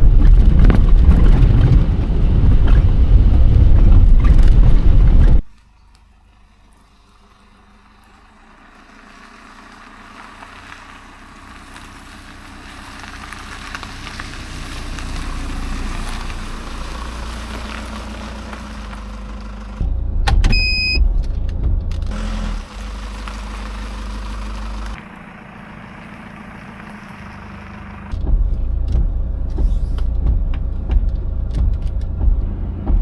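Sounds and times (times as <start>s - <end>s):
heavy rain on a van: 0.0s - 5.4s, 7.0s - 19.6s, 22.1s - 25.0s
low rumble: 0.0s - 5.5s, 12.9s - 25.8s, 26.7s - 33.0s
high electronic beep: 20.4s - 21.1s.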